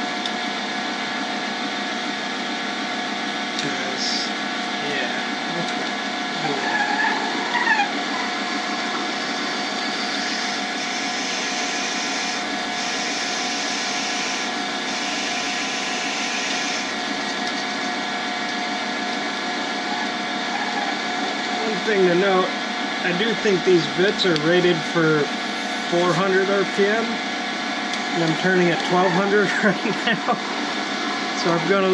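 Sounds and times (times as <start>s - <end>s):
lathe motor running: 0.0s - 31.9s
drill bit cutting wood: 7.4s - 17.3s.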